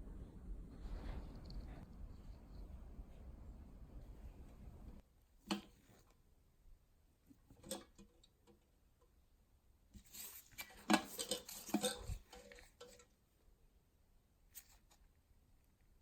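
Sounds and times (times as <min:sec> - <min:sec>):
small parts clicking and clinking: 0:10.6 - 0:13.2.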